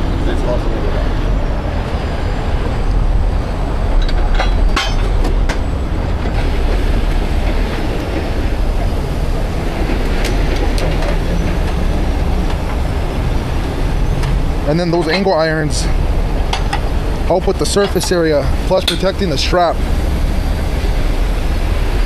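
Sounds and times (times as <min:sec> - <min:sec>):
heavy diesel engine running: 0:00.0 - 0:22.0
sharp metal clanks: 0:04.0 - 0:05.6.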